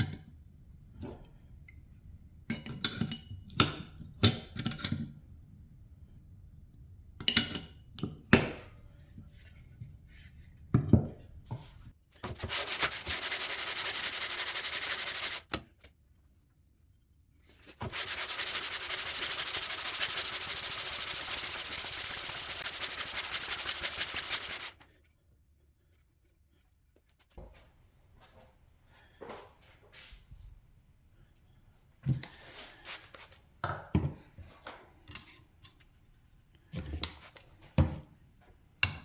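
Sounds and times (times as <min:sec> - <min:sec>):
abrasive sanding: 0:12.4 - 0:15.5, 0:17.8 - 0:24.8.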